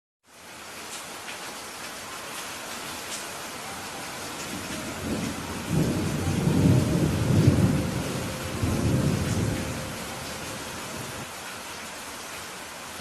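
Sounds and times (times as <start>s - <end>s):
steady rain: 0.2s - 13.0s
thunder rumbling: 4.1s - 11.3s.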